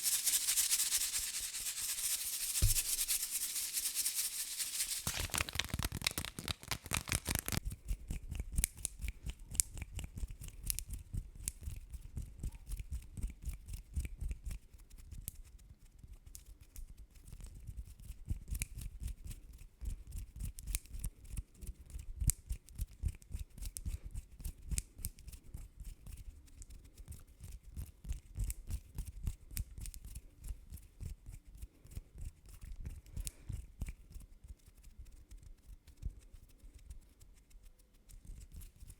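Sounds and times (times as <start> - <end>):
rustling rub: 0.0 - 7.6.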